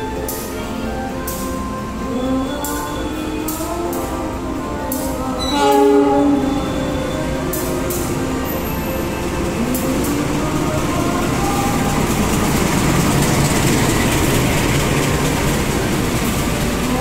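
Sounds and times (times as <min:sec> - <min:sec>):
diesel locomotive engine rumble: 0:00.0 - 0:17.0
wheel and rail noise: 0:00.0 - 0:17.0.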